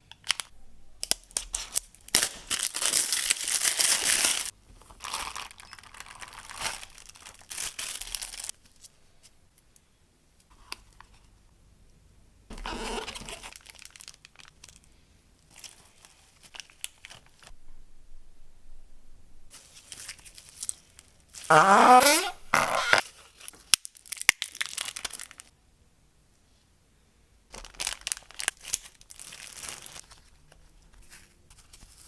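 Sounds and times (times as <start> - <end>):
packaging tearing and crinkling: 1.0 - 4.5.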